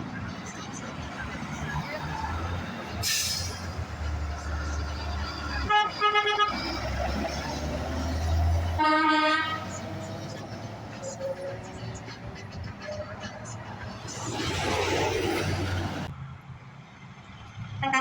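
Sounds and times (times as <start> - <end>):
truck engine rumble: 0.0 - 18.0
truck air horn blasts: 5.5 - 6.9, 8.7 - 9.9.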